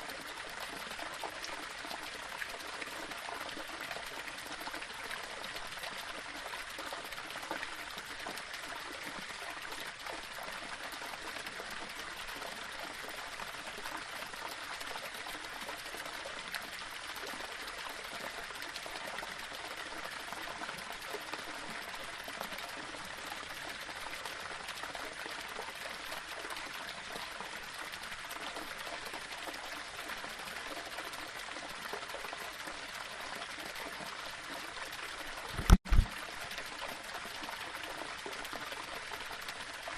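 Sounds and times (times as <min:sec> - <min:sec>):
water running over rocks: 0:00.0 - 0:39.9.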